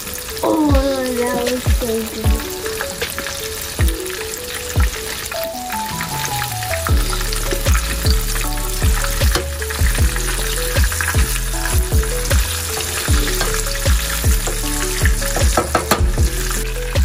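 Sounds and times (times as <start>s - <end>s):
background music with thumping beat: 0.7s - 17.0s.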